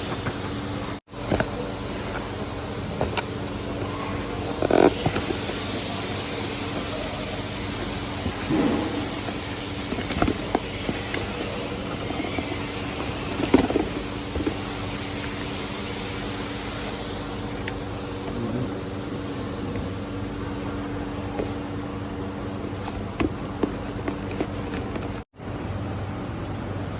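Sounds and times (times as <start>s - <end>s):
car engine running: 4.4s - 25.3s.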